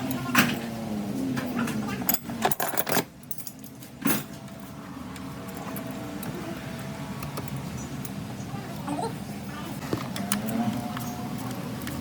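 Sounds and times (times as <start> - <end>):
metal tools clinking: 2.1 - 4.4.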